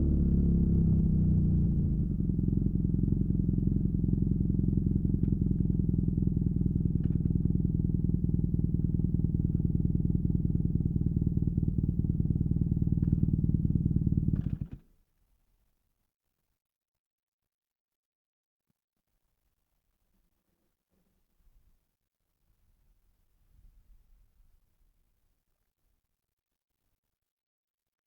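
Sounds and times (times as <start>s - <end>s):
motorcycle engine idling: 0.0s - 14.8s.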